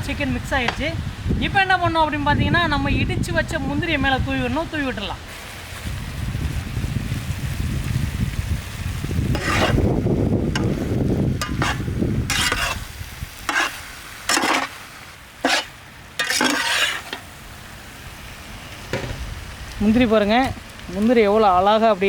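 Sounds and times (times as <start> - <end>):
spoon scraping a pan: 9.3 - 14.8, 15.4 - 17.3.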